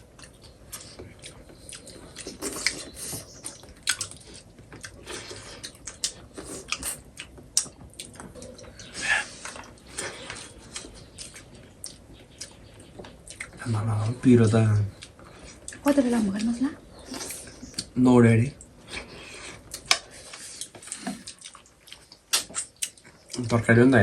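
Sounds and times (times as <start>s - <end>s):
person chewing food: 0.0s - 18.0s, 18.6s - 23.6s
lip smacks: 19.6s - 23.0s.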